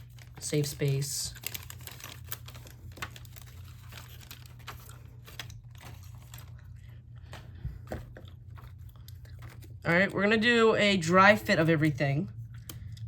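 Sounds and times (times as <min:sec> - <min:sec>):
plastic bag crinkling: 0:00.0 - 0:07.4
steady low hum: 0:00.0 - 0:13.0.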